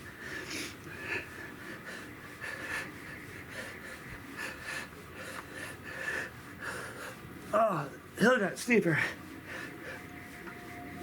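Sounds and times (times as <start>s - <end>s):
man breathing hard: 0.0s - 7.5s, 9.4s - 10.1s
faint steady whine: 0.0s - 11.0s.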